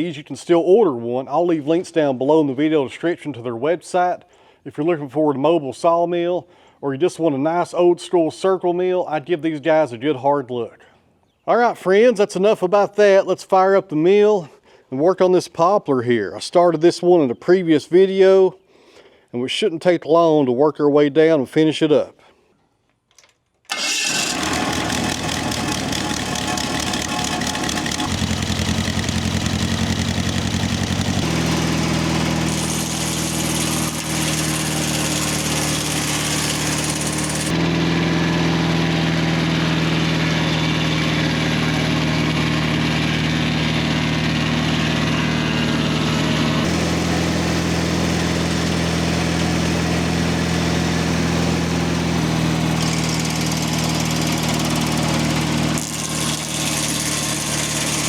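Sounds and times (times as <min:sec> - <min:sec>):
sawmill engine running: 0:23.7 - 0:58.0.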